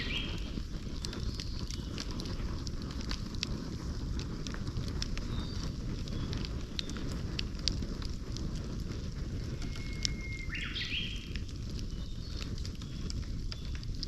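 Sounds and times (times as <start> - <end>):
bird whistling call: 0.0 - 0.4, 9.7 - 11.2
campfire crackling and popping: 0.0 - 14.0.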